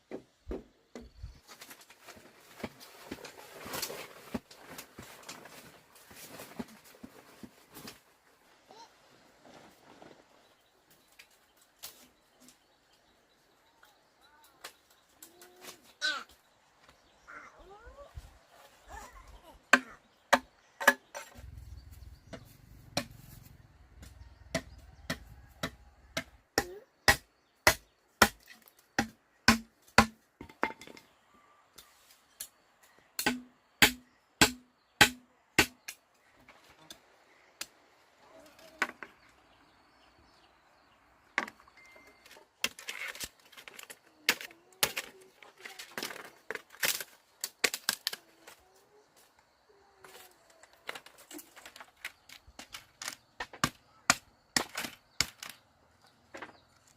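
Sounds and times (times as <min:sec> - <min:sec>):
hand tool striking hard material: 0:22.3 - 0:23.2, 0:24.0 - 0:30.7, 0:33.2 - 0:35.9.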